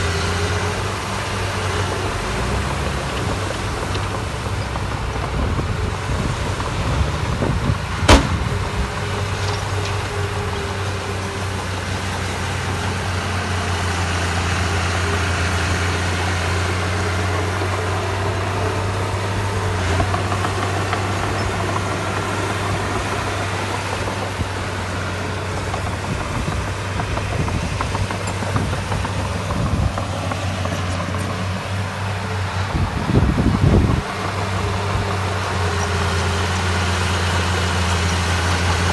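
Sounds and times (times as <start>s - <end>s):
diesel engine humming: 0.0s - 38.9s
knocks and clanks: 8.0s - 8.8s.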